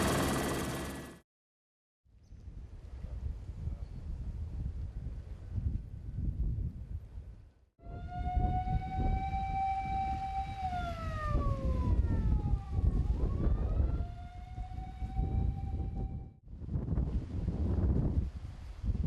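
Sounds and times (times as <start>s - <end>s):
rumbling wind: 2.4s - 19.0s
emergency vehicle siren wailing: 7.8s - 16.4s.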